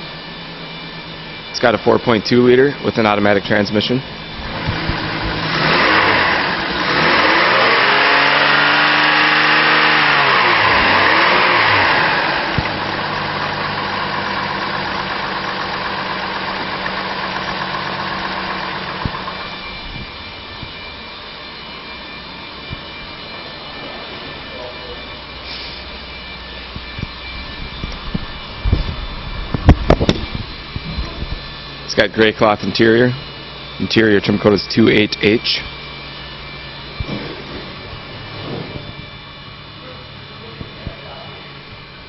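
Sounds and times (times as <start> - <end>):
car engine revving and idling: 4.2 - 21.7.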